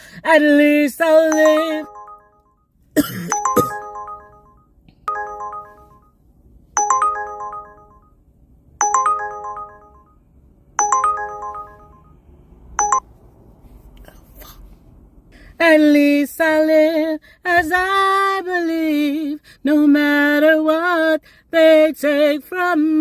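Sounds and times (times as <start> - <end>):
phone ringtone chiming: 1.3 - 2.6, 3.3 - 6.2, 6.8 - 8.2, 8.8 - 10.2, 10.8 - 12.2, 12.8 - 13.1.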